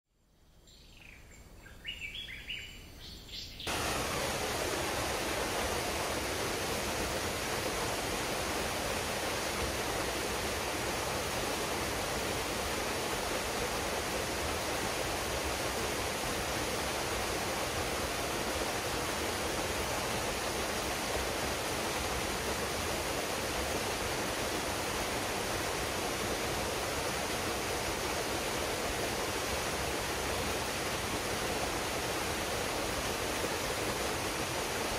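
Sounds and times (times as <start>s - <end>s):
bird chirps: 0.5s - 3.7s
waterfall rushing: 3.7s - 34.9s.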